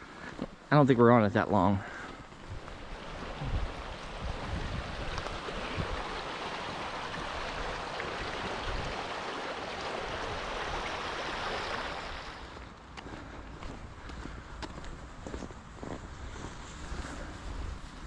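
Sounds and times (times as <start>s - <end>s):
stream water flowing: 2.3s - 12.9s.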